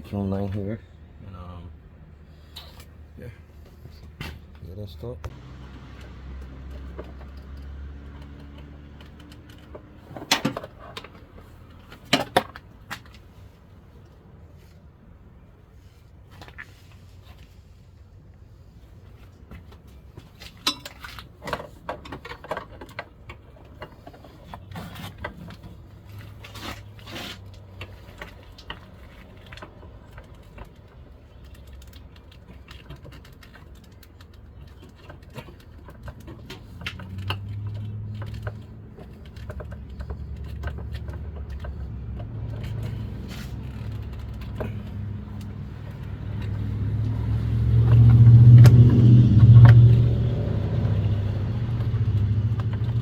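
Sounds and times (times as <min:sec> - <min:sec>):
car engine rumble: 0:00.0 - 0:53.0
clicks and knocks of parts handled: 0:05.2 - 0:13.3, 0:19.4 - 0:48.7, 0:50.7 - 0:53.0.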